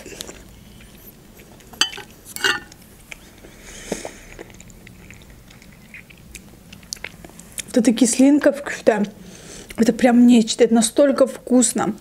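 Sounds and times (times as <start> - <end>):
chewing with wet mouth clicks: 2.7 - 7.8
soft breath: 3.3 - 4.4, 9.2 - 9.8.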